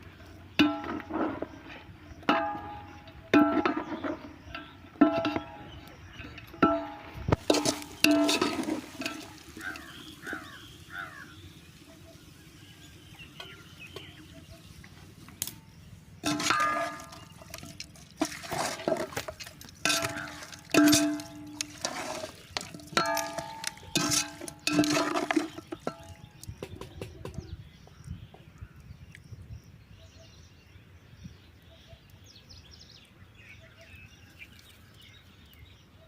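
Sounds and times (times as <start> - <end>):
metal ladle scraping pan: 6.6 - 11.2, 16.2 - 26.2
bird chirps: 9.4 - 18.0.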